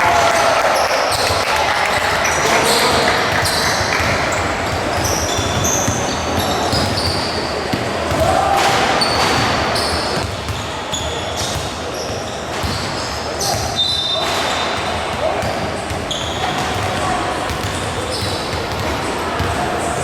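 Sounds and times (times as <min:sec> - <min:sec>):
crowd chatter: 0:00.0 - 0:20.0
sneaker squeaks: 0:00.8 - 0:20.0
basketball bouncing: 0:01.9 - 0:10.7, 0:14.3 - 0:19.6.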